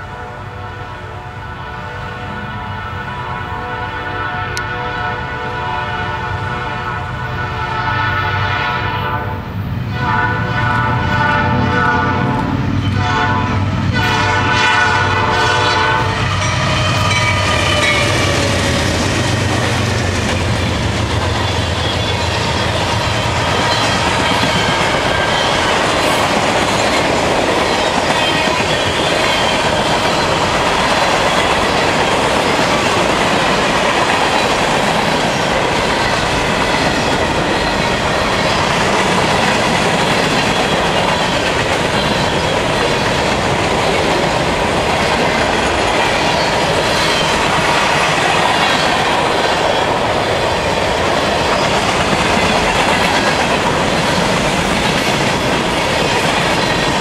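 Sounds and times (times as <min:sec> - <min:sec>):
locomotive horn blasts: 0:00.0 - 0:18.7.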